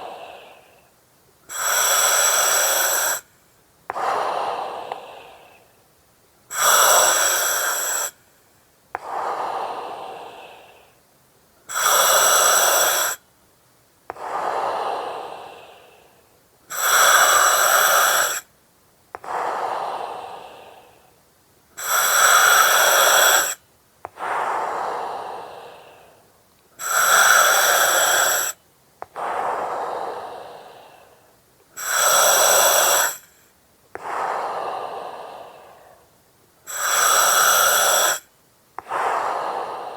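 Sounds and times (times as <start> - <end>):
breathing through oxygen mask: 0.0 - 0.8, 1.5 - 3.3, 6.5 - 8.2, 11.7 - 13.2, 14.1 - 18.5, 21.8 - 31.2, 31.8 - 36.1, 36.7 - 39.9.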